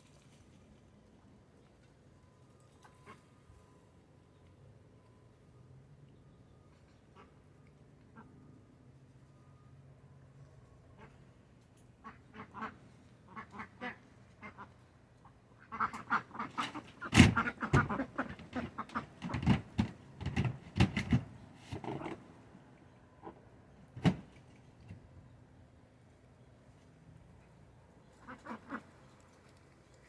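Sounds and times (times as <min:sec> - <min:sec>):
ducks quacking: 0:12.0 - 0:19.6, 0:28.2 - 0:29.0.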